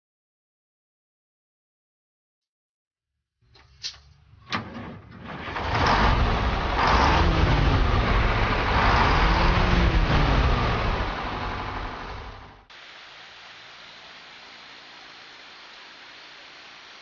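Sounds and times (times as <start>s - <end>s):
heavy rushing noise: 5.4s - 17.0s
pickup engine running loudly: 5.5s - 12.6s.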